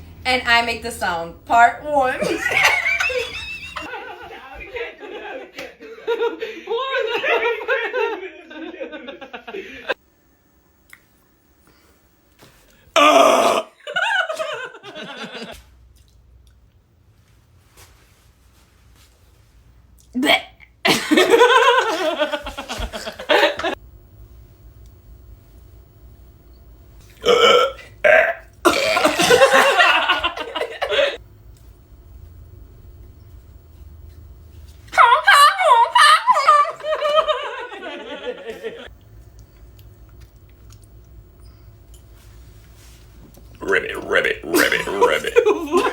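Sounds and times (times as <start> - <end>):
person making harsh vocal blast: 13.0 - 13.7, 28.0 - 29.3, 43.6 - 45.9
person making warbling vocal sound: 43.6 - 45.8.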